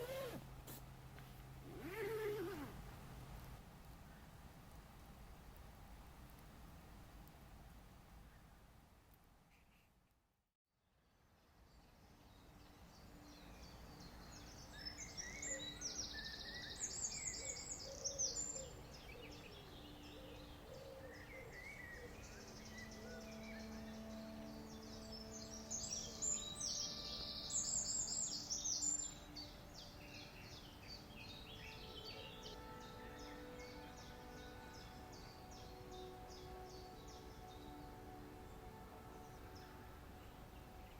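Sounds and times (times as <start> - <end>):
faint steady drone: 11.0 - 40.9
bird rapid high-pitched song: 21.2 - 37.9.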